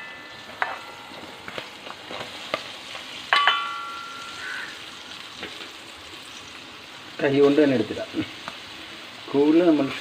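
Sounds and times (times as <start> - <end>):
metal utensil clinking on pan: 0.0 - 2.2, 3.2 - 4.6
paste sizzling in hot oil: 0.0 - 10.0.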